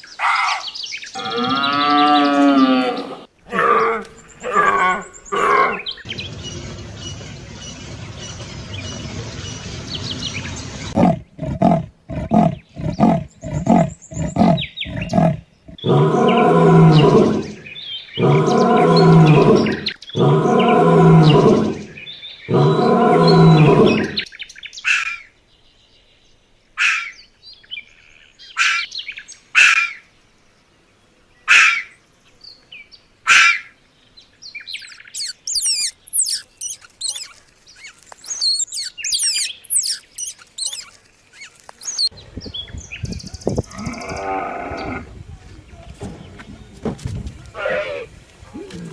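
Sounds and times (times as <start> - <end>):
rough animal noise: 0.0 - 24.3, 34.7 - 42.2, 42.9 - 48.9
short high chirps: 35.1 - 37.4, 38.3 - 40.9
long pitched animal calls: 43.6 - 45.1.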